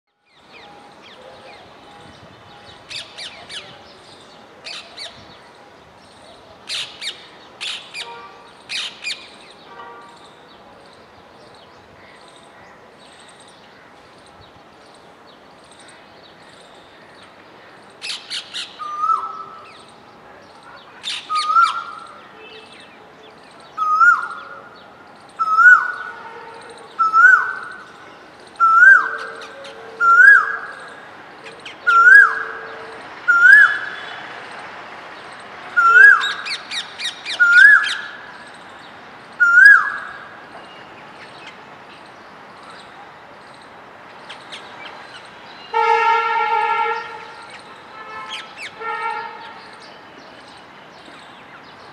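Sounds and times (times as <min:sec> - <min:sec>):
birds screeching: 0:06.7 - 0:10.4, 0:15.7 - 0:19.9, 0:20.8 - 0:22.9, 0:23.7 - 0:34.3, 0:35.8 - 0:43.6, 0:47.0 - 0:51.9.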